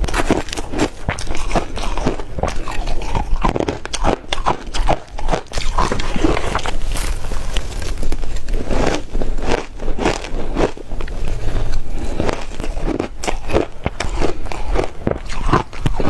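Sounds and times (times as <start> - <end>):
ice being chewed: 0.0 - 16.0.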